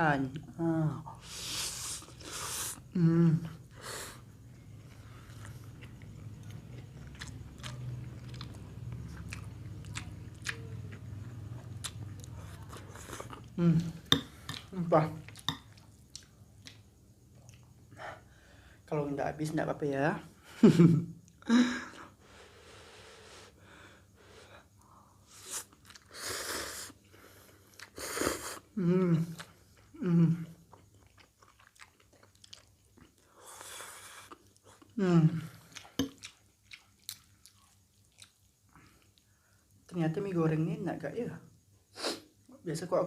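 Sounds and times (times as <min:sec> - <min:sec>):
low steady hum: 0:02.8 - 0:22.4
person chewing noodles: 0:04.7 - 0:16.8, 0:17.4 - 0:17.8, 0:25.4 - 0:28.7, 0:30.6 - 0:39.3.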